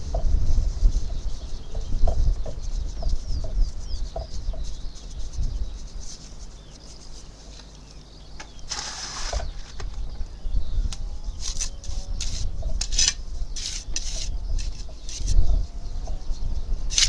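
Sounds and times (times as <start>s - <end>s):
faint bird chirps: 0.8s - 17.0s
scraping noise: 8.7s - 9.7s.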